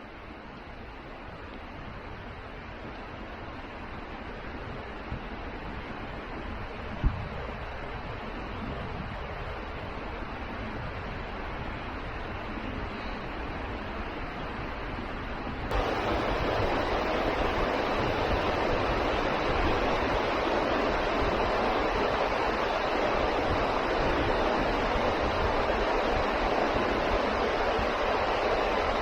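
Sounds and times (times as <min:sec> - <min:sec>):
waterfall rushing: 0:15.7 - 0:29.0.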